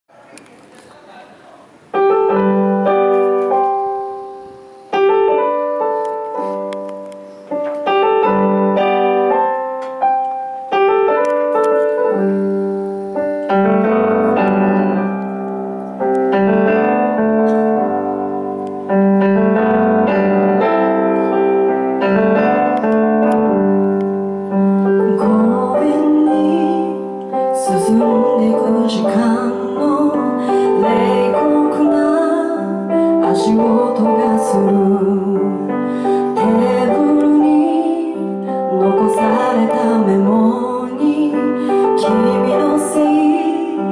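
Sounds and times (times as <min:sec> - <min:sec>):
solo piano chords: 0:01.8 - 0:43.9
woman singing: 0:24.9 - 0:43.9.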